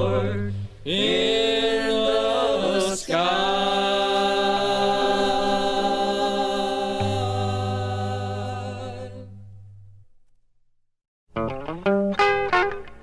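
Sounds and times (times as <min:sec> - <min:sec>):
vocal group singing a chord: 0:00.0 - 0:09.4.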